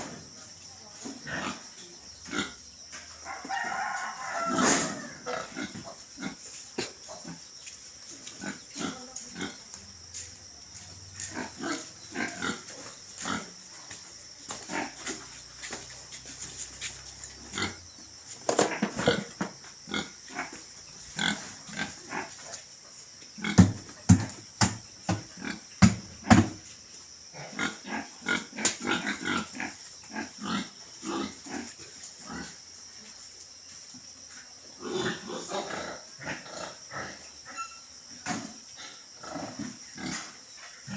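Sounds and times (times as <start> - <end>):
pigs grunting: 4.4 - 7.5, 11.2 - 13.6, 14.6 - 15.8, 17.3 - 17.9, 18.5 - 22.6, 27.3 - 32.6, 34.8 - 40.9.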